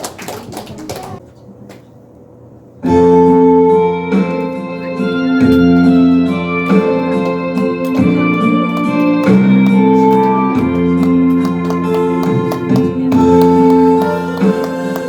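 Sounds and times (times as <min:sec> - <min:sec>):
people clapping: 0:00.0 - 0:01.9, 0:05.4 - 0:15.0
harmonica ensemble playing: 0:02.9 - 0:15.0.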